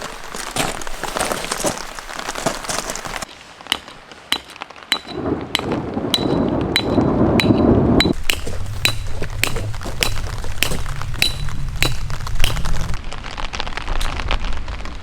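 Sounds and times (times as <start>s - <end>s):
heavy rain on a tent: 0.0s - 6.1s, 10.3s - 15.0s
water drops pinging on hard surface: 3.7s - 12.9s
low rushing: 4.9s - 13.0s.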